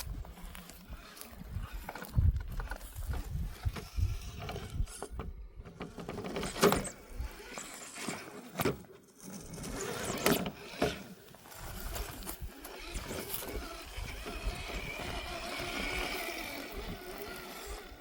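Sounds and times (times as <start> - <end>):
tyres crunching over stones: 0.0 - 5.0, 9.8 - 18.0
electric motor and gearbox whirring: 0.0 - 18.0.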